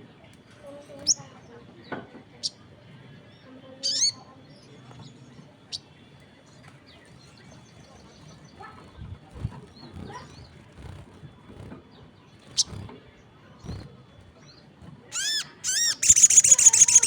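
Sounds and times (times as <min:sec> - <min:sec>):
songbird chirps and whistles: 0:13.6 - 0:17.0.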